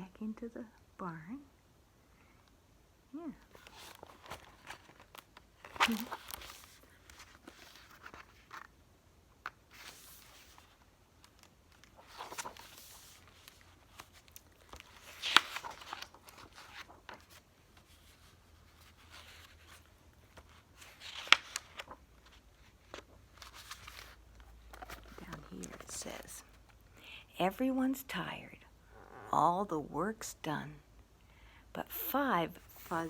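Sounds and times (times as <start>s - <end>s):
book pages rustling: 3.4s - 8.8s, 9.4s - 26.8s, 32.6s - 33.0s.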